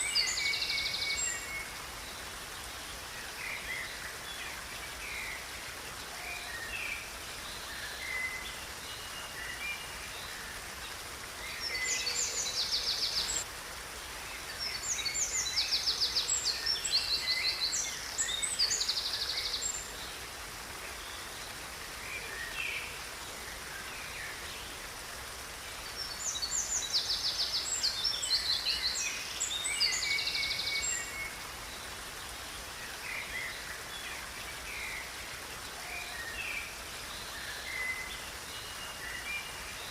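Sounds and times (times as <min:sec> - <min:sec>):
songbirds chirping and trilling: 0:00.0 - 0:13.5
steady hiss: 0:00.0 - 0:39.9.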